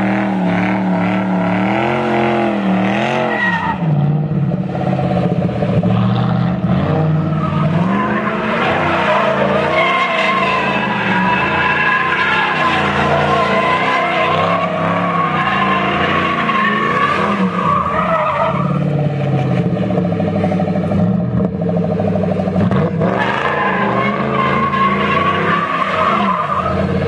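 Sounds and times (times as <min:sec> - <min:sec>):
car engine at high revs: 0:00.0 - 0:27.0
tyres squealing: 0:07.2 - 0:18.8, 0:23.2 - 0:26.9.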